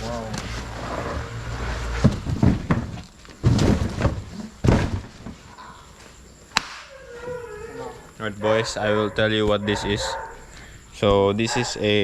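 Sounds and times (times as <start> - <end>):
dull thumps and knocks: 2.0 - 5.5.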